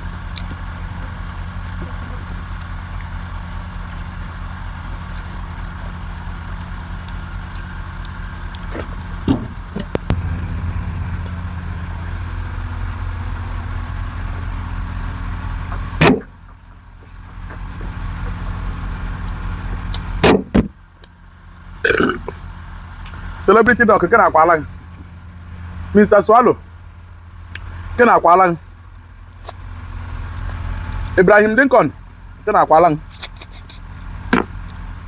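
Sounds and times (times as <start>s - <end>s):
low motor hum: 9.9s - 20.2s, 22.7s - 28.0s.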